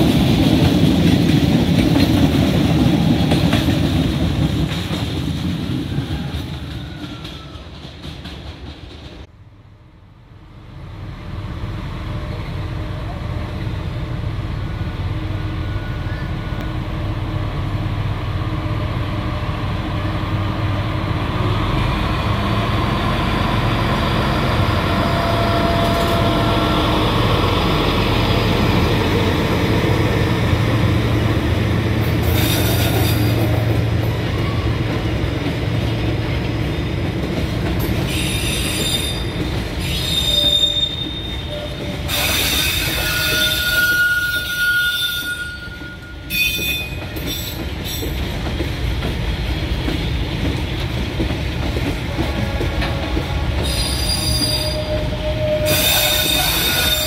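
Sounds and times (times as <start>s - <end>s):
locomotive engine humming: 10.1s - 38.2s, 47.0s - 57.0s
high-pitched wheel squeals: 38.1s - 47.5s, 53.6s - 57.0s.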